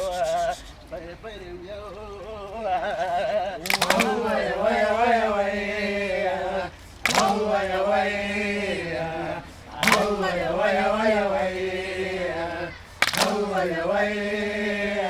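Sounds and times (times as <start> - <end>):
voices chanting in unison: 0.0 - 15.0.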